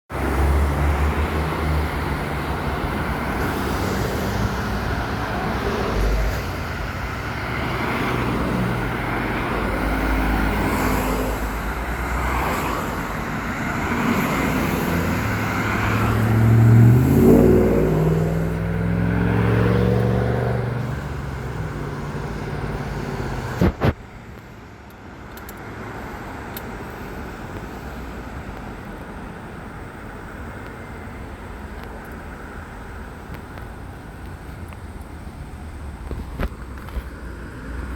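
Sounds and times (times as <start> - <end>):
car engines passing: 0.1 - 37.9
vehicle accelerating away: 13.8 - 23.6.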